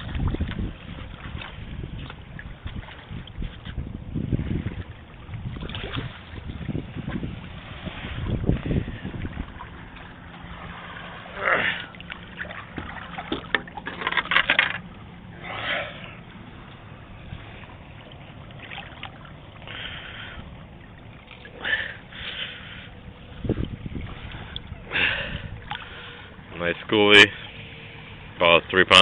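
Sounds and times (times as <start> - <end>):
faint steady hum: 0.0 - 29.0
water splashing: 0.0 - 29.0.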